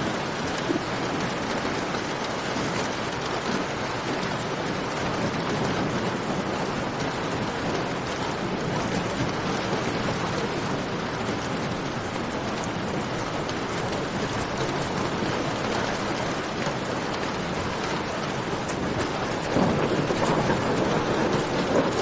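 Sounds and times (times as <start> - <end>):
rain falling and dripping: 0.0 - 22.0
campfire crackling: 7.3 - 22.0.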